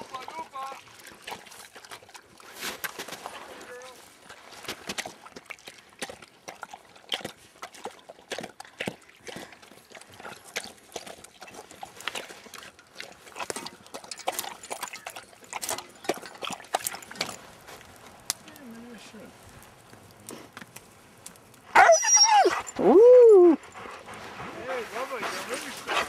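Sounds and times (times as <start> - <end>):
dog paws crunching on snow: 23.8 - 26.0.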